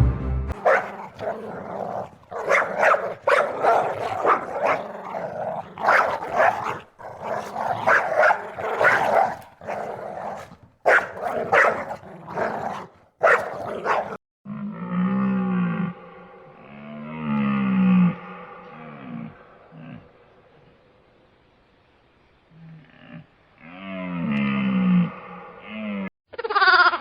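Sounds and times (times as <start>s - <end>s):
dog barking: 0.6s - 14.2s.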